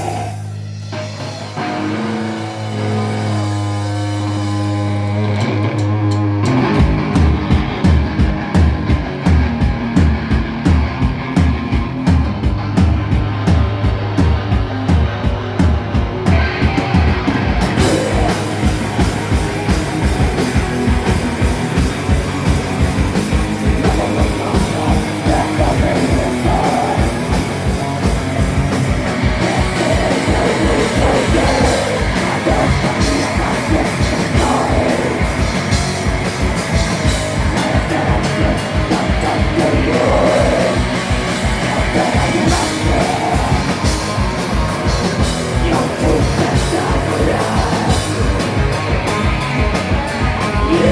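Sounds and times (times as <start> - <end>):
guitars: 0.0 - 50.9
drumbeat: 6.1 - 50.9
person singing: 17.8 - 19.5, 23.5 - 28.1, 29.1 - 48.7, 50.2 - 50.9.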